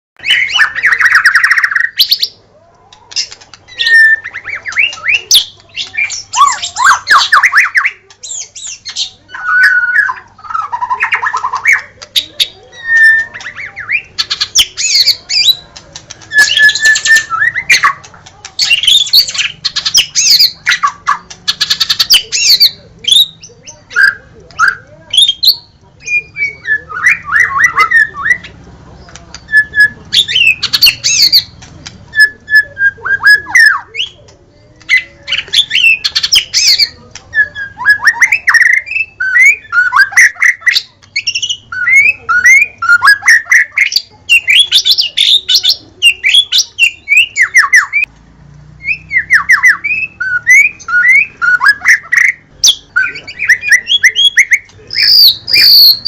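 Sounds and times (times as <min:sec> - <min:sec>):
bird singing trills and whistles: 0:00.2 - 0:02.4, 0:03.1 - 0:34.2, 0:34.8 - 0:48.1, 0:48.8 - 0:56.0.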